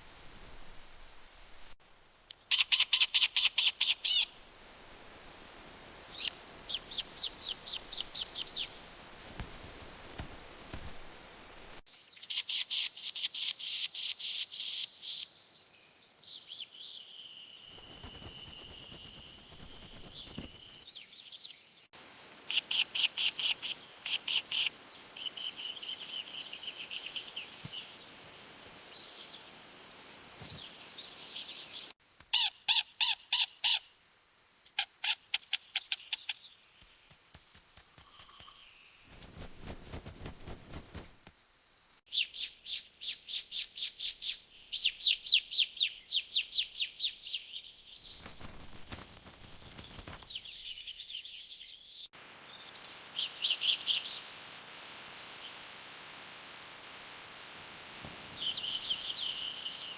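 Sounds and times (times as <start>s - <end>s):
small birds chirping: 6.1s - 11.0s, 12.0s - 29.6s, 34.7s - 41.3s, 42.1s - 54.4s, 58.0s - 59.9s.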